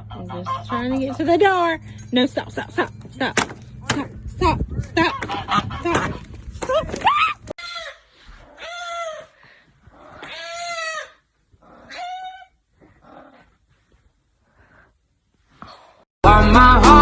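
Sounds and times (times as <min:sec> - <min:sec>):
animal crying: 0:04.9 - 0:12.6.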